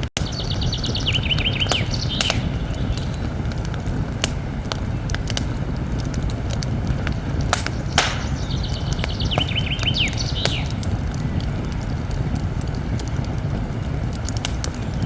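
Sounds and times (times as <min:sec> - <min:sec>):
campfire crackling and popping: 0:00.0 - 0:15.0
bird chirping: 0:00.2 - 0:03.4, 0:07.6 - 0:11.5
steady low rumble: 0:00.2 - 0:15.0.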